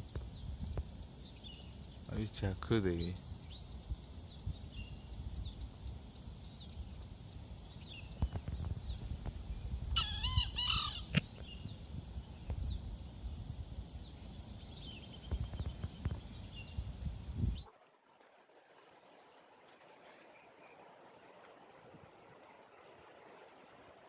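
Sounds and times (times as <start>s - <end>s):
high insect drone: 0.0s - 17.7s
junglefowl crowing: 10.0s - 11.2s.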